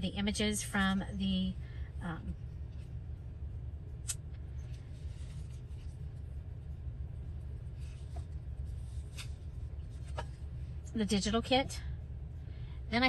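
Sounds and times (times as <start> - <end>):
low background hum: 0.0 - 13.0
paper rustling: 4.6 - 6.0, 7.8 - 10.4.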